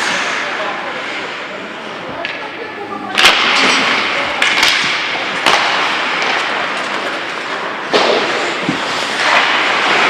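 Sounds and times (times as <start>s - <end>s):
hockey sticks knocking puck: 2.1s - 10.0s
skate blades scraping ice: 3.2s - 10.0s.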